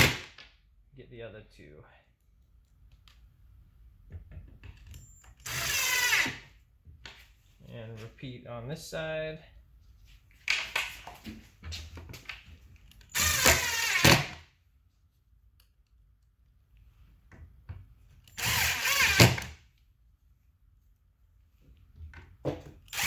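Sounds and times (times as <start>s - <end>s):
power drill driving screws: 5.3s - 6.5s, 13.0s - 14.4s, 18.3s - 19.6s.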